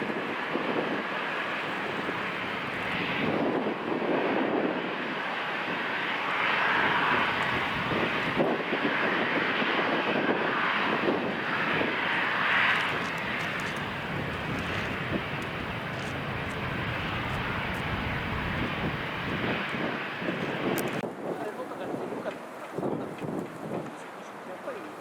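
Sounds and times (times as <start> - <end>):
wind buffeting microphone: 0.0 - 24.8
airliner engine noise: 0.0 - 25.0.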